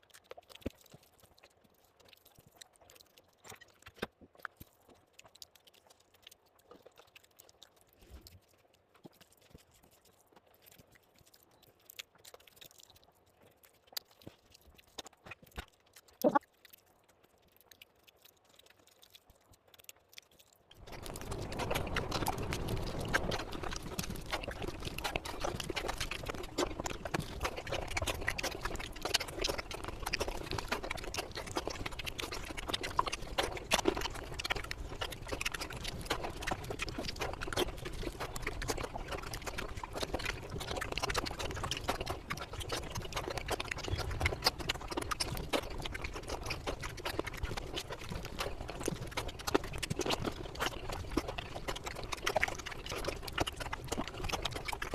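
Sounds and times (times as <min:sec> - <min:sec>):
chewing and lip-smacking: 0:00.0 - 0:54.9
mouth clicks: 0:14.9 - 0:16.5, 0:20.8 - 0:54.8.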